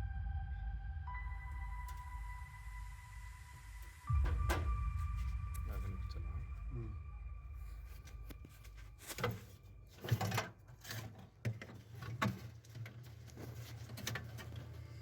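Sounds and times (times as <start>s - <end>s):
steady low hum: 0.0s - 10.9s
clicks knocks and rustles: 9.1s - 14.7s.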